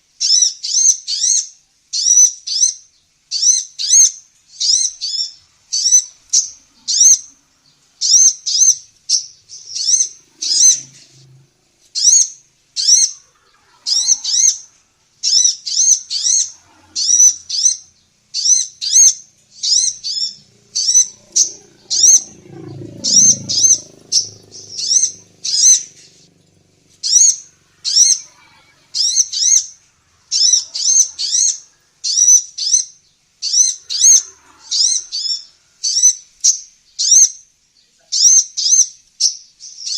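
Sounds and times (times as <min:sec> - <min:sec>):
bird high chirps: 0:00.2 - 0:39.9.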